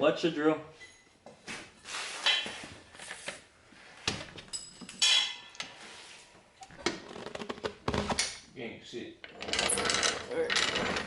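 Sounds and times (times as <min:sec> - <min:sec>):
metal tools clanking and scraping: 0:04.4 - 0:05.8, 0:09.2 - 0:11.0.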